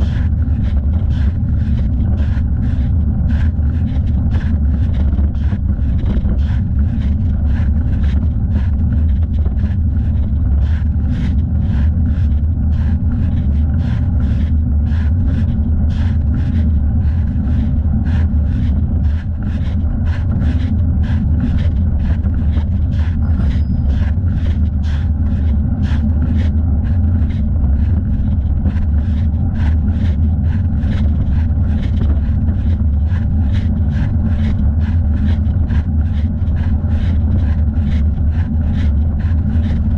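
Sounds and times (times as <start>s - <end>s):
wind and road rumble: 0.0s - 39.9s.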